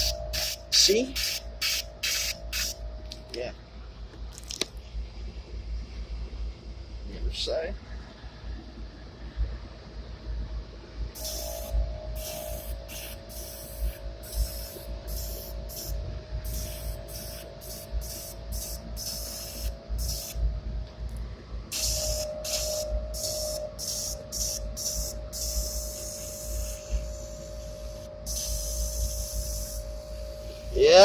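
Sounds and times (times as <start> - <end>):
airbrush spraying bursts: 0.0 - 2.8, 11.2 - 20.4, 21.7 - 30.9
steady hum: 0.0 - 31.0.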